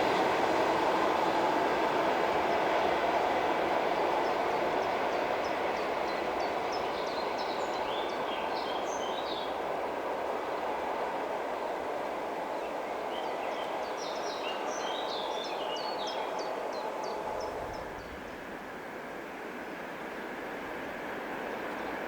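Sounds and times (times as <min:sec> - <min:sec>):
electric train running: 0:00.0 - 0:13.1
songbird singing: 0:04.0 - 0:09.6, 0:12.5 - 0:18.2.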